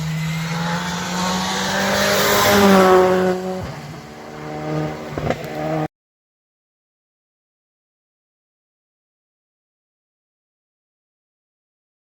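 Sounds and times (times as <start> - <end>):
rally car engine revving: 0.0 - 5.9.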